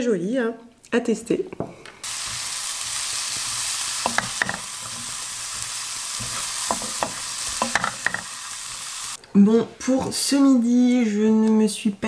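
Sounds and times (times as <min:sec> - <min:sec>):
vegetables sizzling in a frying pan: 0:02.0 - 0:09.2.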